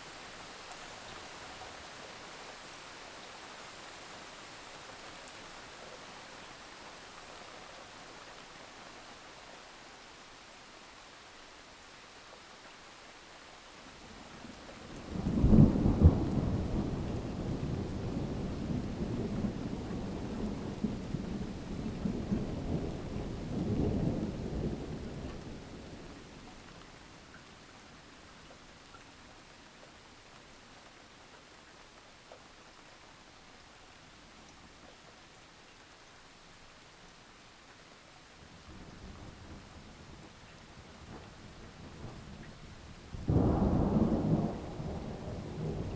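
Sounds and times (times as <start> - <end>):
steady rain: 0.0 - 45.9
thunder crack and rumble: 15.0 - 25.4, 43.2 - 45.9.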